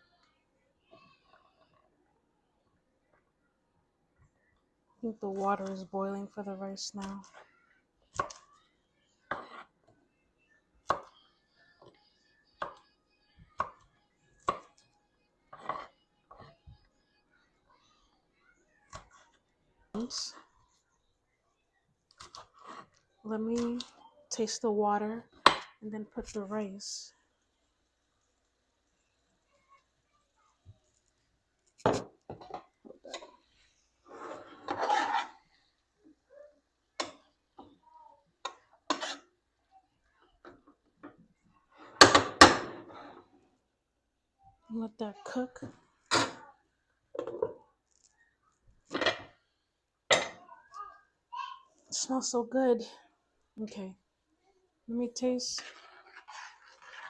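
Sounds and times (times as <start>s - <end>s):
pots and utensils clattering: 48.9s - 49.4s.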